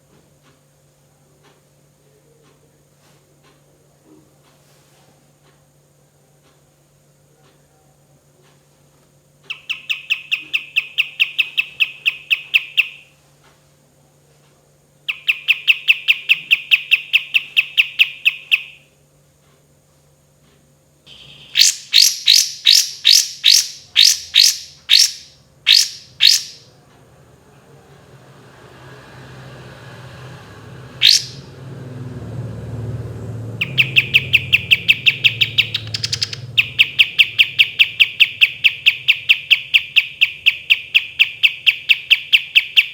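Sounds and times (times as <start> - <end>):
sharp bird notes and whistle: 9.5 - 13.1, 15.1 - 18.9, 21.1 - 26.7, 31.0 - 31.5, 33.6 - 42.9
songbird rattling trills: 21.1 - 26.7, 31.0 - 31.5, 33.6 - 42.9.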